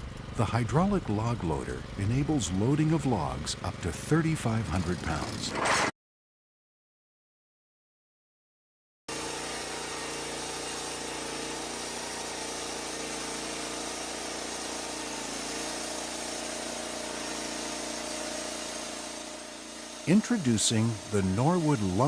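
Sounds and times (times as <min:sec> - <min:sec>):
small engine humming: 0:09.1 - 0:22.0.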